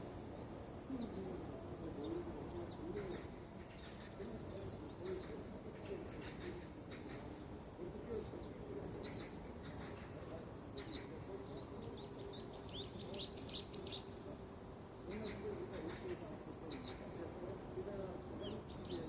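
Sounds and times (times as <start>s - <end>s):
outdoor background noise: 0.0s - 19.0s
birds chirping: 1.0s - 19.0s.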